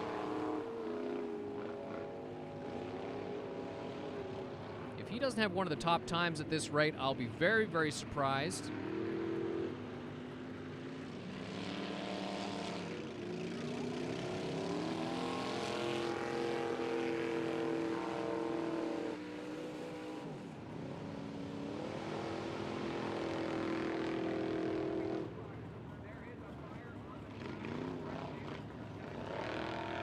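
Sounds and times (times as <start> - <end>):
engine revving under load: 0.0 - 5.3, 8.2 - 25.3, 27.3 - 30.0.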